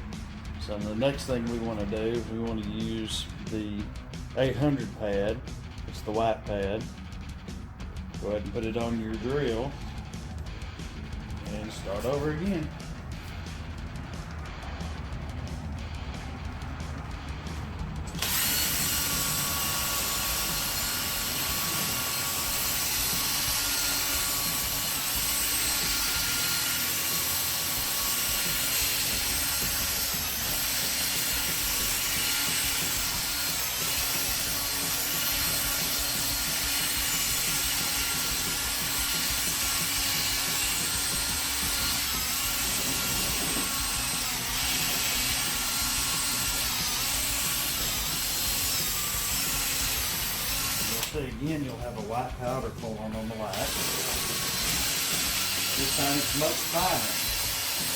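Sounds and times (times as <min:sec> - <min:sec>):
power drill motor whine: 0:18.1 - 0:51.2, 0:53.5 - 0:57.9.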